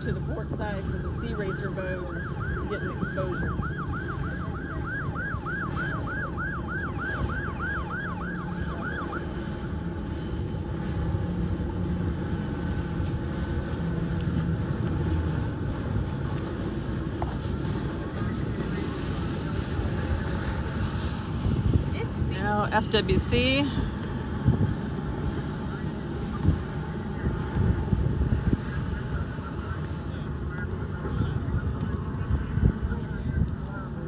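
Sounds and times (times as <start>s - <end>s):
steady low rumble: 0.0s - 34.0s
emergency siren yelping: 0.9s - 10.8s.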